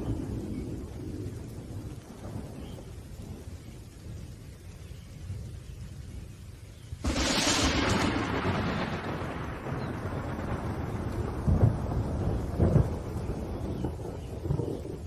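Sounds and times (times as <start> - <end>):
low rolling thunder: 0.0 - 6.3, 7.0 - 15.0
steady rain: 0.0 - 15.0
sharp thunderclap crack: 7.0 - 15.0.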